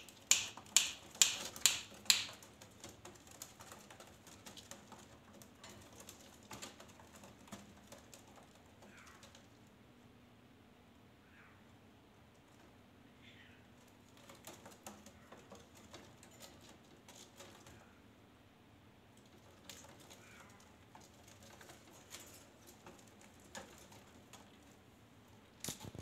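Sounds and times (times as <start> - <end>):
faint clicks and taps: 0.0 - 9.8, 13.8 - 17.9, 19.1 - 26.0.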